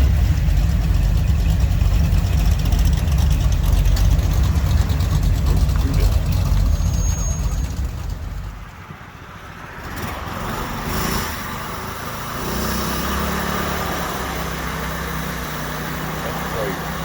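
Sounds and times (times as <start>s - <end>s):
engine idling: 0.0s - 8.8s, 14.2s - 17.0s
vehicle engine rumbling low: 0.0s - 12.4s, 13.1s - 17.0s.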